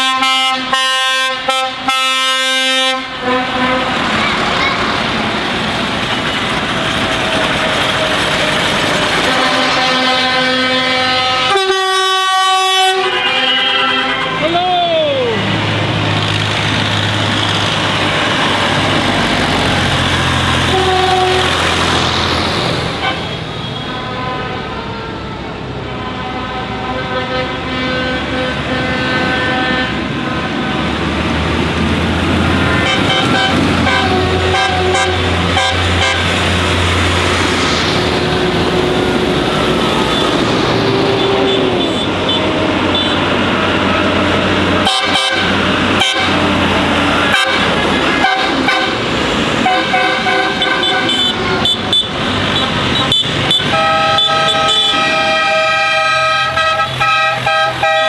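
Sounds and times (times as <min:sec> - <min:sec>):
lorry horns sounding: 0:00.0 - 0:16.4, 0:17.0 - 0:58.0
passing trucks: 0:00.0 - 0:58.0
deep engine drone: 0:29.5 - 0:42.4.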